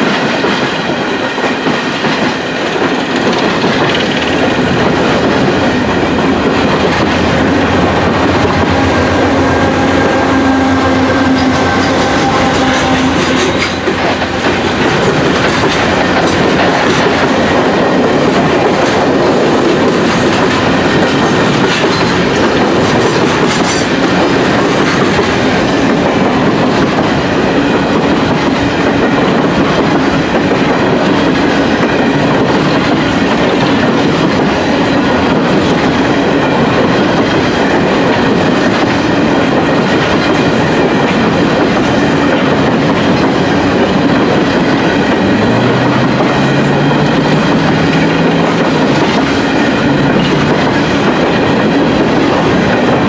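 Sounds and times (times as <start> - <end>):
train wheels clattering on rails: 0.0 - 53.0
locomotive engine humming: 2.3 - 53.0.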